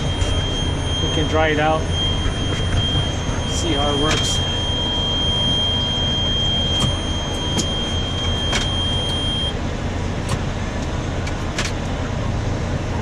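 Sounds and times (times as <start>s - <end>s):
thin high whine: 0.0s - 9.5s
tractor engine running: 0.0s - 13.0s.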